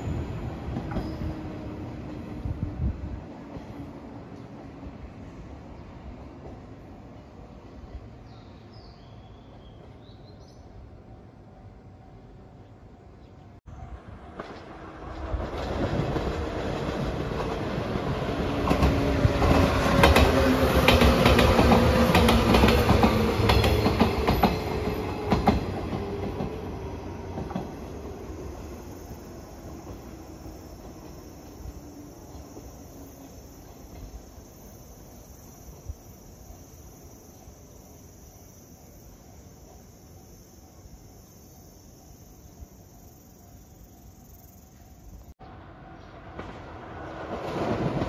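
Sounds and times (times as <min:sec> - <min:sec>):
electric train passing: 0:00.0 - 0:08.6, 0:10.6 - 0:48.0.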